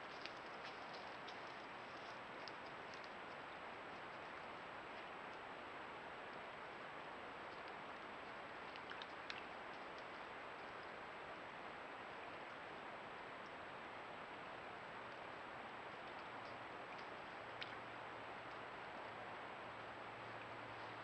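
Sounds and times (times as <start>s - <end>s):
faint clicks: 0.0s - 5.4s, 7.4s - 11.0s, 15.9s - 19.1s
faint low hum: 0.0s - 21.0s
steady outdoor hiss: 0.0s - 21.0s.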